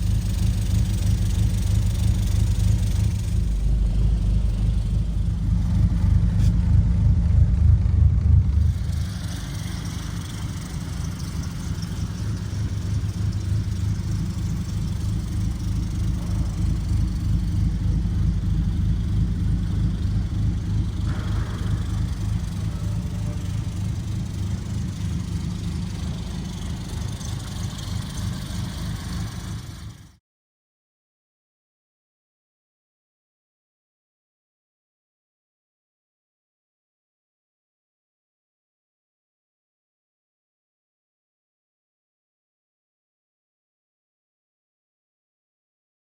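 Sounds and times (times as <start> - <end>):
car engine idling: 0.0 - 30.1.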